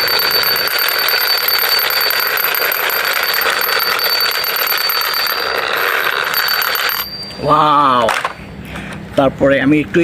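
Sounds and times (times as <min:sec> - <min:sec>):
toy helicopter buzzing whir: 0:00.0 - 0:07.7.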